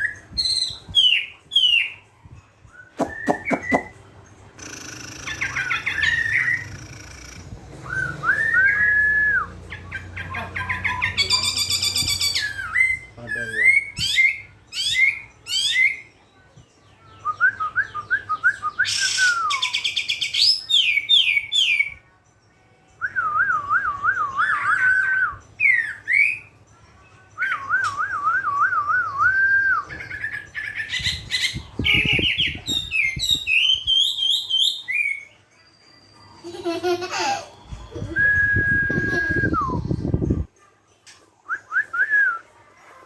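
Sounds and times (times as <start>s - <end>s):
pet bird chirping and trilling: 2.9s - 8.9s, 9.6s - 16.1s, 29.9s - 37.0s
bird warbled whistle: 3.0s - 4.0s.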